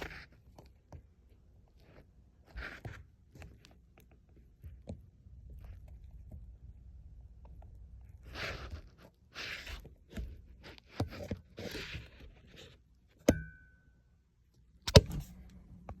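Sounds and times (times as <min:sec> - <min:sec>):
rustling and scraping: 0:00.0 - 0:06.6, 0:07.4 - 0:13.2.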